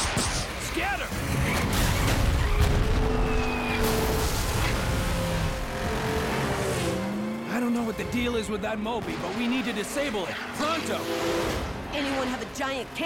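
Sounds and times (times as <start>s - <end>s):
impact sound effects: 1.2s - 7.1s.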